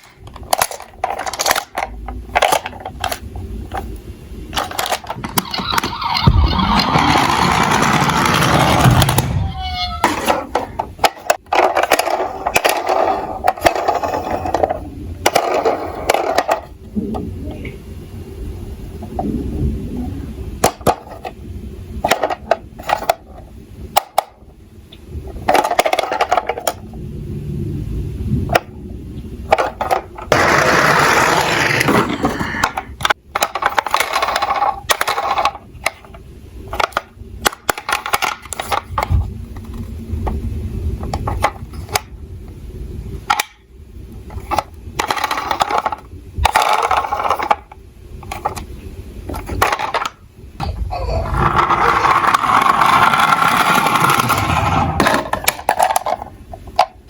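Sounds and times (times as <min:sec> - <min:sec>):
toy car wheels rattling: 0:04.6 - 0:16.7, 0:51.2 - 0:56.3
metal toy cars clacking: 0:29.5 - 0:36.1, 0:44.3 - 0:48.6.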